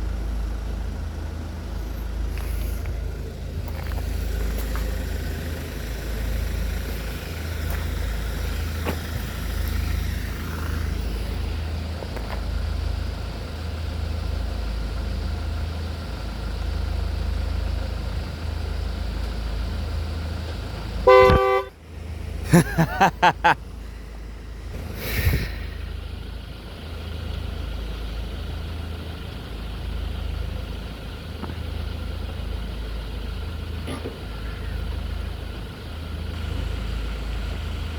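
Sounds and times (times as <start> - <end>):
steady low rumble: 0.0 - 20.0
horn toots: 21.0 - 21.8.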